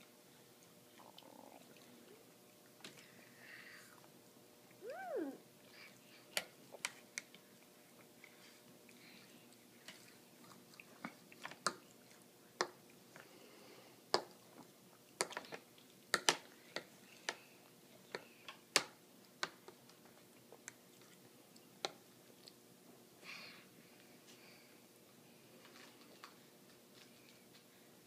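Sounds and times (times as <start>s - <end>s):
toddler chewing with mouth smacks: 4.8s - 13.3s, 19.5s - 22.6s.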